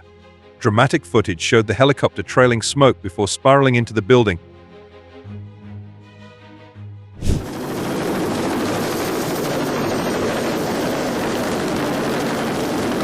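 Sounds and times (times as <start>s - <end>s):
helicopter rotor and engine: 7.2s - 13.0s.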